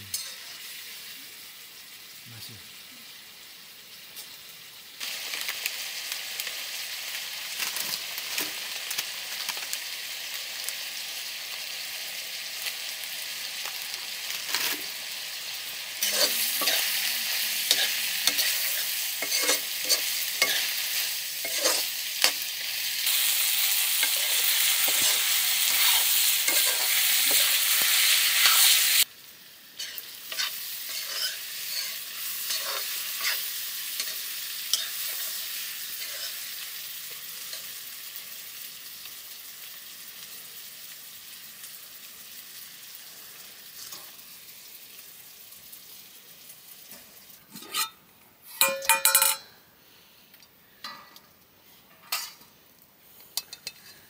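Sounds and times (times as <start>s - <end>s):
food sizzling in a pan: 0.0s - 54.0s
spoon scraping and knocking pan: 17.7s - 22.4s, 24.0s - 28.7s, 48.6s - 49.5s.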